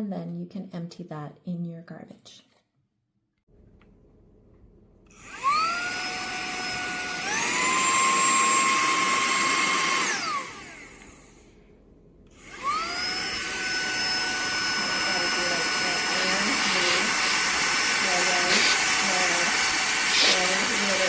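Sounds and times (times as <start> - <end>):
handheld vacuum cleaner whining: 5.1 - 11.5, 12.3 - 21.0.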